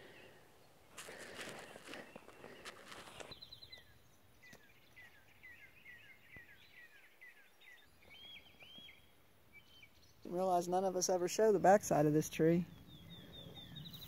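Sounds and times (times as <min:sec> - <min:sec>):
faint songbird chirps: 0:00.0 - 0:11.4, 0:12.3 - 0:14.0
footsteps in dry leaves: 0:00.9 - 0:03.3.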